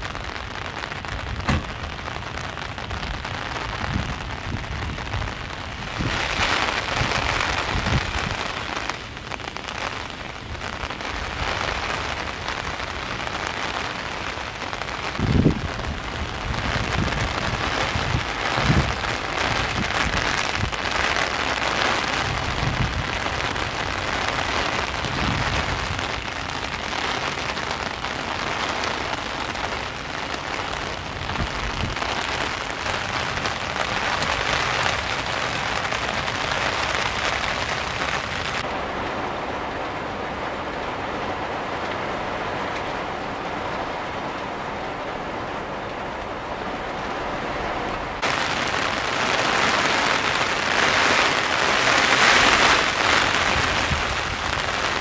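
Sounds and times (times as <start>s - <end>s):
heavy rain falling: 0.0s - 55.0s
low thumps: 1.4s - 1.9s.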